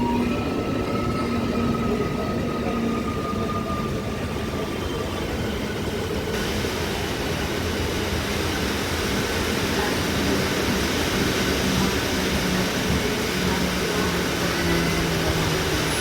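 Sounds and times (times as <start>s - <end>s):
train rumbling: 0.0s - 16.0s
train hiss: 6.3s - 16.0s.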